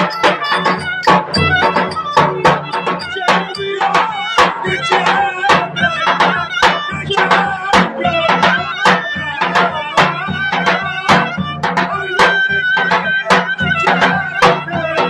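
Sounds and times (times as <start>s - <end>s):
drum beating: 0.0s - 5.7s.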